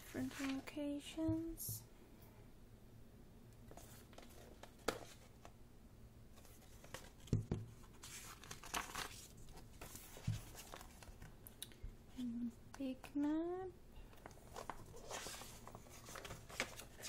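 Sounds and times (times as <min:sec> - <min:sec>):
paper rustling and crinkling: 0:00.0 - 0:00.8, 0:03.7 - 0:05.5, 0:06.4 - 0:11.3, 0:14.2 - 0:17.0
book knocking: 0:07.2 - 0:07.7.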